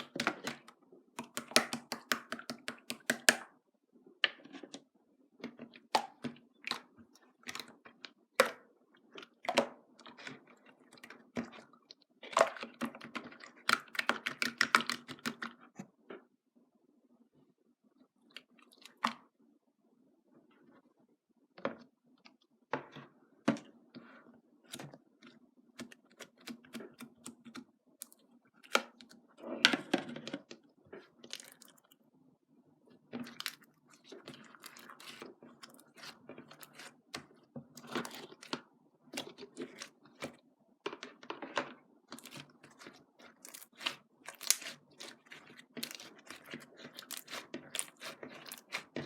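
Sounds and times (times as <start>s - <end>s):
crunchy chewing: 42.1s - 49.0s.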